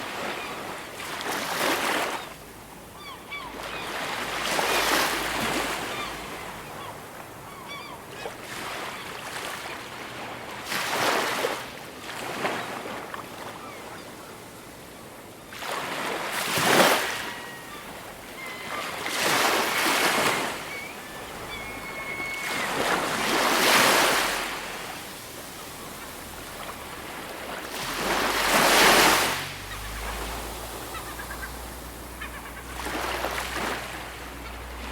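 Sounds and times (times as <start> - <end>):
waves breaking on shore: 0.0 - 34.9
faint bird calls: 2.0 - 4.8, 5.4 - 9.2, 16.6 - 24.8, 28.0 - 34.9.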